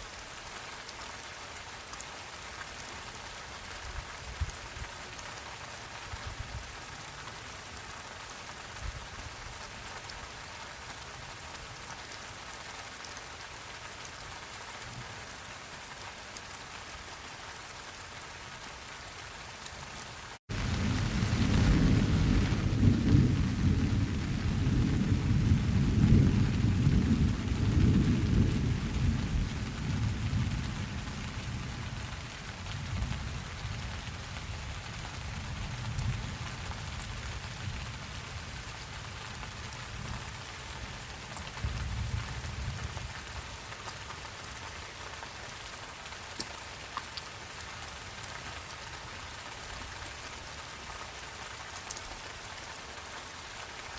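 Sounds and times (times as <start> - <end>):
steady rain falling: 0.0 - 53.9
low rumble of thunder: 20.5 - 43.6.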